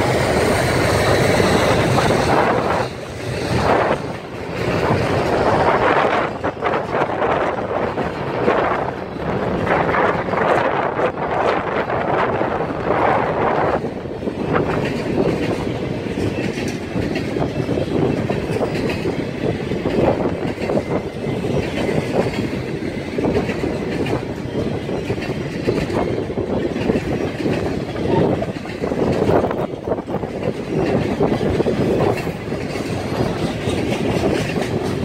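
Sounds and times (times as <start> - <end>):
freight train rumbling past: 0.0 - 35.0
wheels clicking over rail joints: 0.0 - 35.0.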